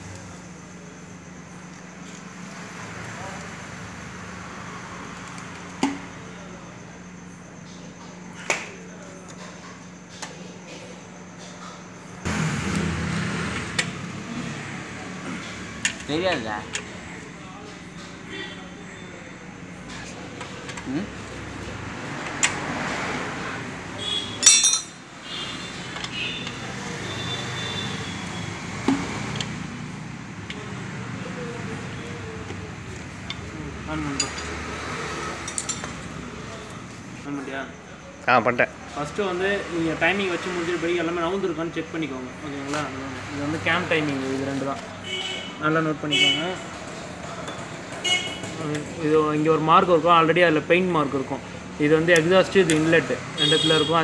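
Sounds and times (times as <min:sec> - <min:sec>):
tools clinking on metal: 0:24.4 - 0:25.0, 0:34.1 - 0:34.6, 0:35.4 - 0:36.0.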